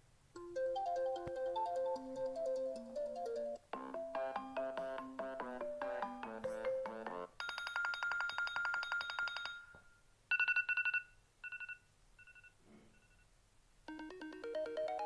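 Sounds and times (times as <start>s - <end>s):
melodic phone ringtone: 0.4s - 12.5s, 13.9s - 15.0s
fast-trilling phone ringtone: 7.4s - 13.2s.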